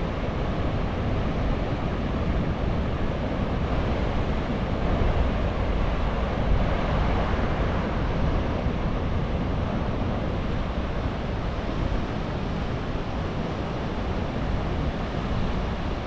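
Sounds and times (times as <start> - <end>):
surf washing in: 0.0 - 16.0
wind rumbling on microphone: 0.0 - 16.0.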